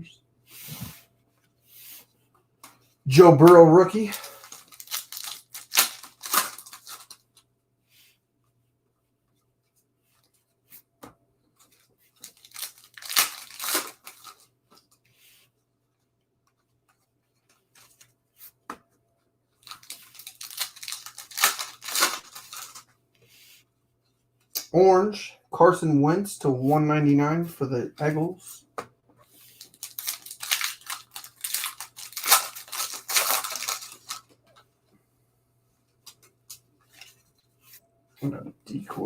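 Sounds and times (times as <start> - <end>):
foil wrappers tearing and crinkling: 3.2 - 7.2, 12.2 - 14.4, 19.6 - 22.9, 29.6 - 34.4.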